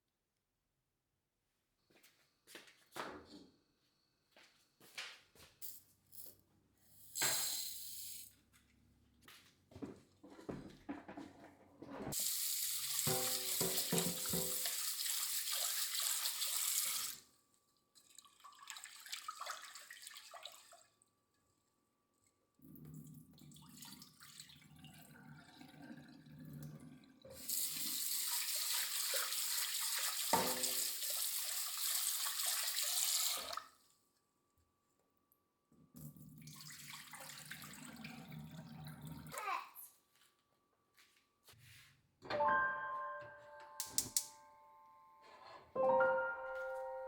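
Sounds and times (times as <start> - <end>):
tap running into sink: 12.2 - 15.2, 30.2 - 31.0.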